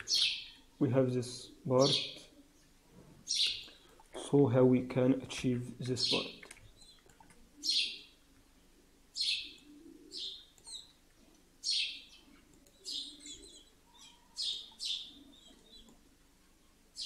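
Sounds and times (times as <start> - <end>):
bird chirping: 0.0 - 3.9, 5.9 - 8.2, 9.1 - 16.0.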